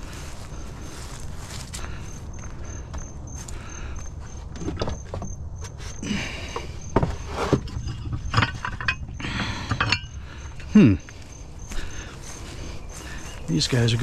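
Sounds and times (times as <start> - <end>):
scrap knocking and clanking: 4.4 - 10.7.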